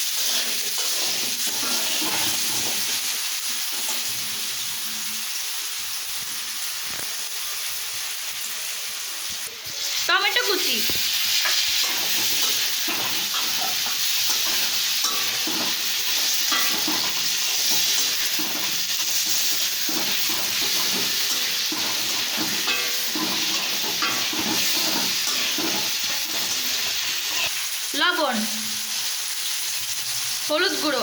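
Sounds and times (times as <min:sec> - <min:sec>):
spoon scraping a pan: 0:00.0 - 0:04.2, 0:10.9 - 0:27.6
food sizzling in oil: 0:00.0 - 0:31.0.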